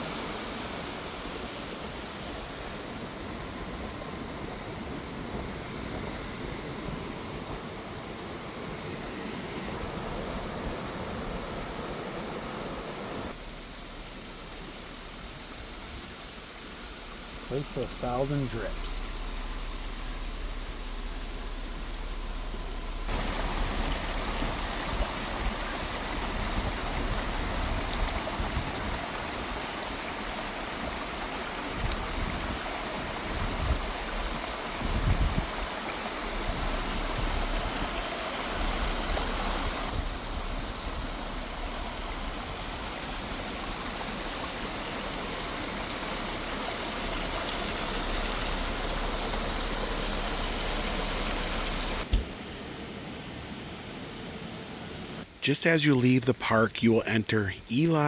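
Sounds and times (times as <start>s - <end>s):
vehicle low rumble: 2.7s - 29.0s, 30.3s - 52.6s
waterfall splashing on rock: 13.3s - 52.4s.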